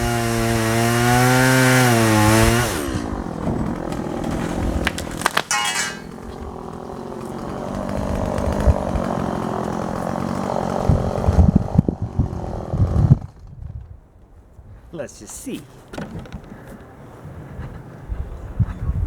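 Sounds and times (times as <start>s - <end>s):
chainsaw cutting wood: 0.0s - 13.5s.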